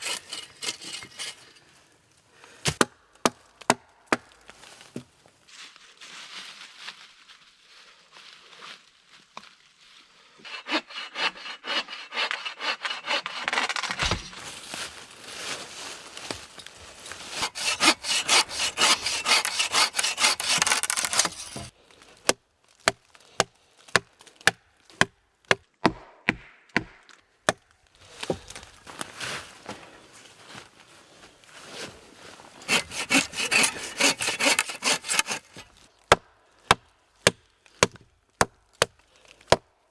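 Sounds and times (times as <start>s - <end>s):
hand saw cutting wood: 0.0s - 1.6s, 10.4s - 14.4s, 17.1s - 21.7s, 32.6s - 35.8s.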